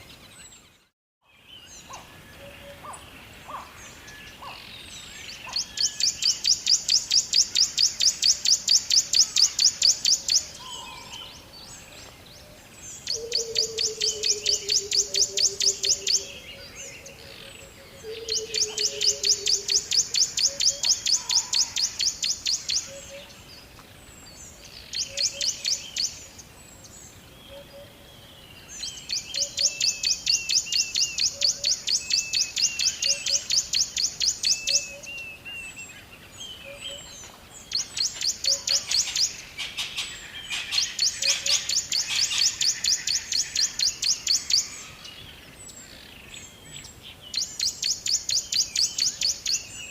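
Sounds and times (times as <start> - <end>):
other birds calling softly: 0.0 - 49.9
bird chirping rapidly: 37.7 - 44.8.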